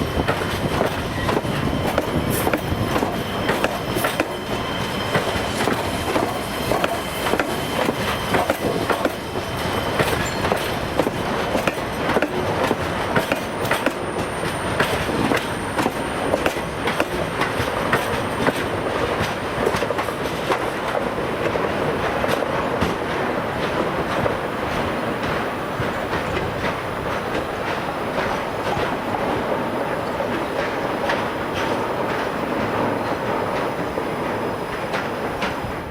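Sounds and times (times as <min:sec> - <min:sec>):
faint high wheel squeal: 0:00.0 - 0:10.9
wheels clacking over rail joints: 0:00.0 - 0:35.9.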